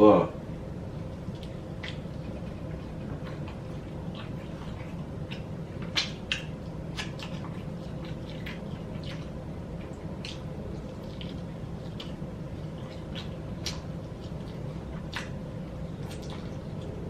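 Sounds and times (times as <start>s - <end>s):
steady low hum: 0.0s - 17.0s
wet chewing and mouth smacking: 1.0s - 17.0s.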